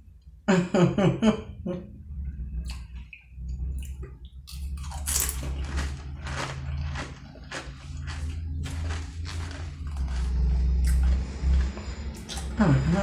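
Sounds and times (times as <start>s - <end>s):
chip crunching while chewing: 3.8s - 12.6s.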